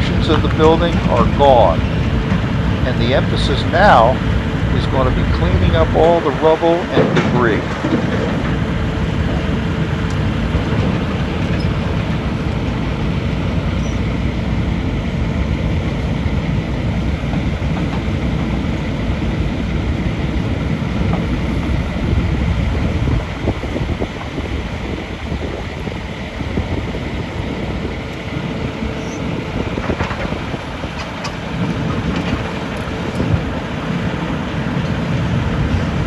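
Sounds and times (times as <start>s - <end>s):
faint steady hum: 0.0s - 7.7s
heavy machinery engine rumble: 0.0s - 36.0s.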